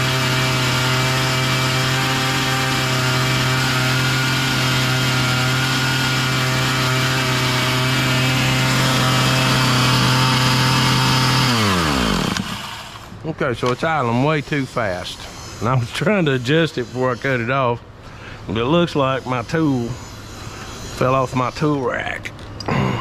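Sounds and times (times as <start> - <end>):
chainsaw engine idling fast: 0.0 - 13.1
chainsaw engine winding down: 0.0 - 13.1.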